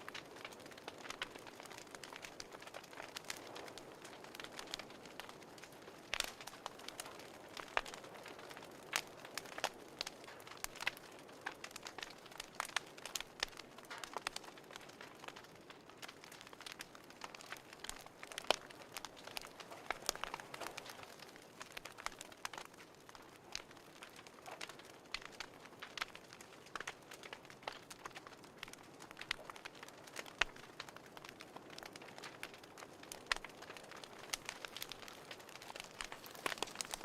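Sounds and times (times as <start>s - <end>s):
wood fire popping and snapping: 0.0s - 37.0s
fire hissing: 33.4s - 37.0s.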